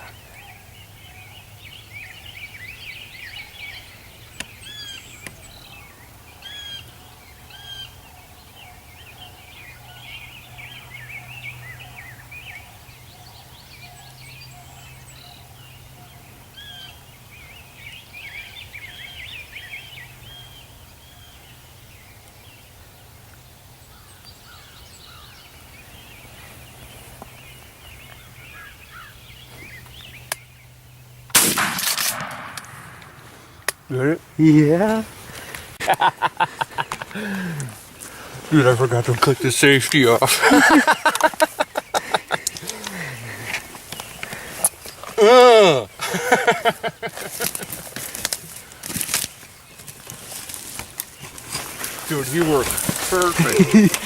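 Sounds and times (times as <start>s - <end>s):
turkeys gobbling and calling: 35.3s - 38.5s, 40.1s - 44.7s, 46.0s - 49.0s.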